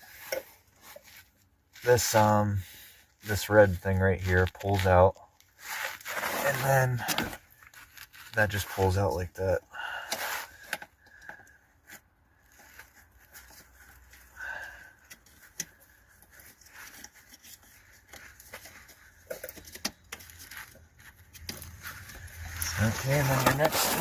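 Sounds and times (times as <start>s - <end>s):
hands handling plastic connector: 15.0s - 24.0s.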